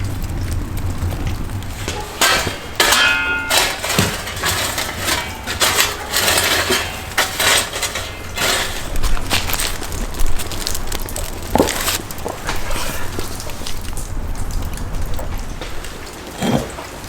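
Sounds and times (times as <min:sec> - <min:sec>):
cookware knocking and scraping: 0:01.8 - 0:09.9.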